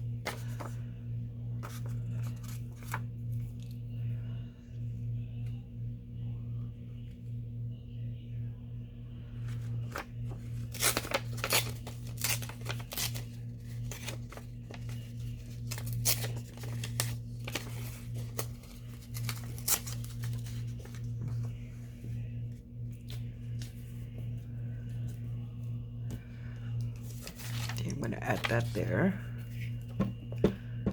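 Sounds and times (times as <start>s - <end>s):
steady low hum: 0.0s - 30.9s
paper crackling: 0.2s - 0.9s, 9.5s - 21.6s, 26.7s - 30.3s.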